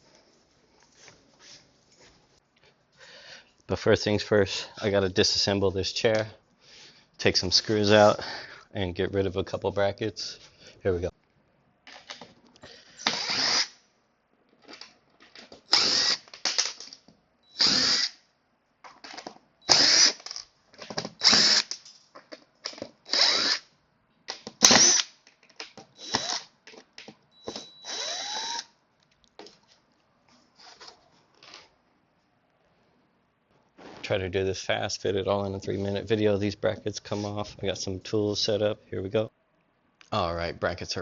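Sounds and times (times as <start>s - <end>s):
power drill backing out screws: 15.7s - 16.3s, 19.7s - 20.4s, 21.0s - 21.7s, 26.0s - 26.4s.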